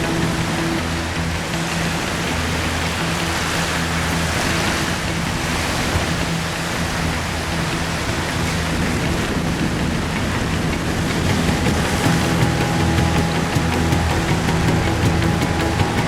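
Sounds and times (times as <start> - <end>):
low hum: 11.1 - 16.0.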